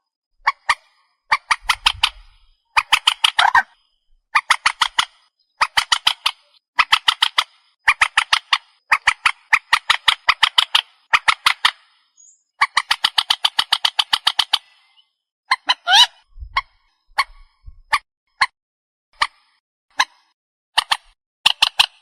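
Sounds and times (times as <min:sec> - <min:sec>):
bird squawking: 0:00.0 - 0:03.8, 0:07.9 - 0:17.5.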